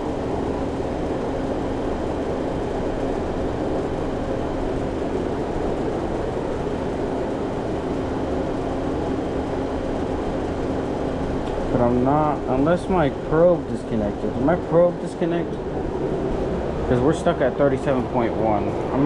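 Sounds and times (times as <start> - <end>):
condenser fan whoosh: 0.0 - 19.0
refrigerator compressor humming: 0.0 - 19.0.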